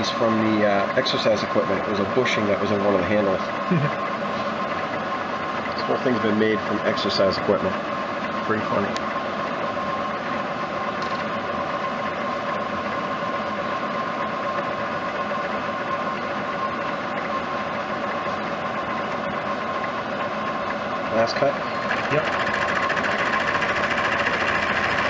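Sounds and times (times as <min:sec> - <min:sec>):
machine tool cutting metal: 0:21.3 - 0:25.0.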